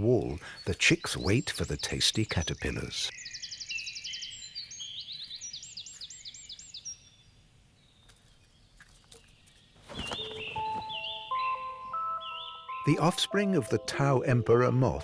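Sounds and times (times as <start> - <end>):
nuthatch calling: 0.0 - 7.1, 9.1 - 13.1.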